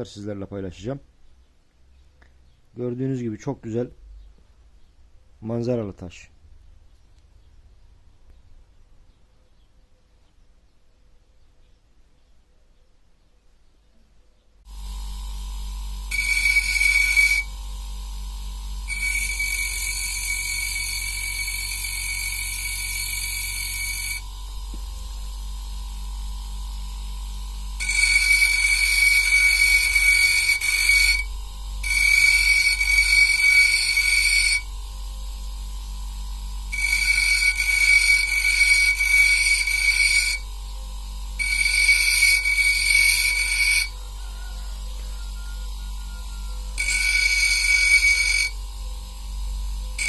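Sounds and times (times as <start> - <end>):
motor hum: 14.7 - 50.0
stone grinding on wheel: 16.1 - 17.6, 18.9 - 24.3, 27.8 - 34.7, 36.7 - 40.5, 41.4 - 48.6.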